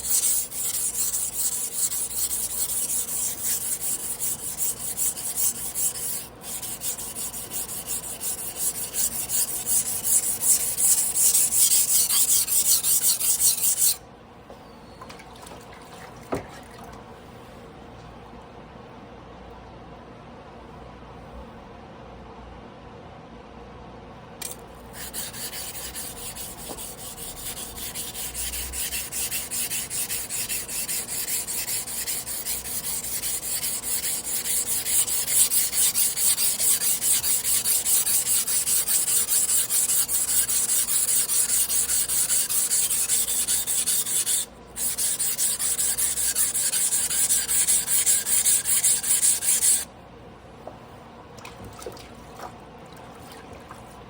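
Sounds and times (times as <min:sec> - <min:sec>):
knife sharpening on whetstone: 0:00.0 - 0:14.0, 0:25.0 - 0:49.9.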